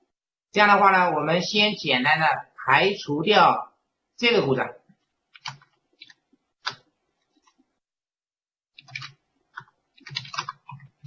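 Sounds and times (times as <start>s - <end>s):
computer mouse clicking: 5.0s - 7.6s, 8.8s - 11.0s.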